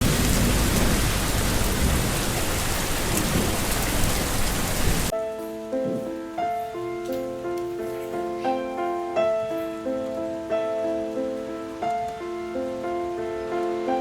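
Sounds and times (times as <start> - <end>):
heavy rain hissing: 0.0 - 6.8
soft music with sustained notes: 5.1 - 14.0.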